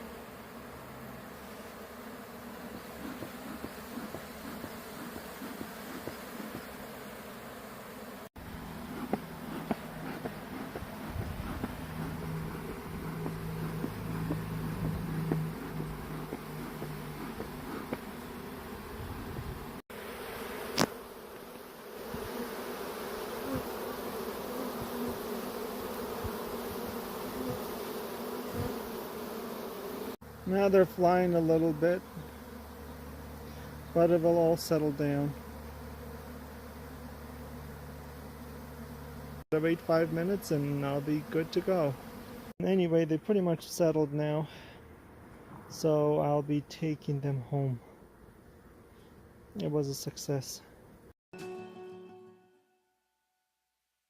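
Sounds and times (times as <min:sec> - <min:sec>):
bee swarm buzzing: 0:00.0 - 0:42.9.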